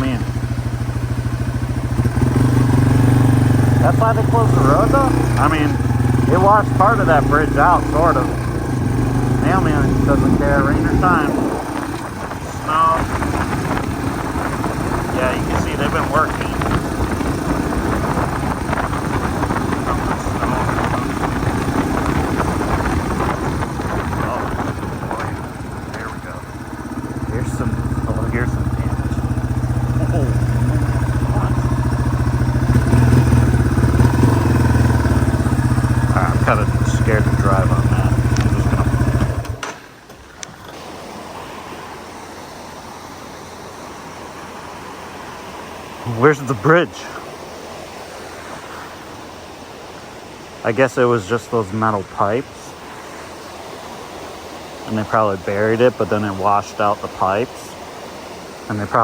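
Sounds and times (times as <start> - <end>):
motorcycle engine running: 0.0 - 50.1
stream rushing: 0.0 - 59.0
wind noise on microphone: 8.4 - 26.0.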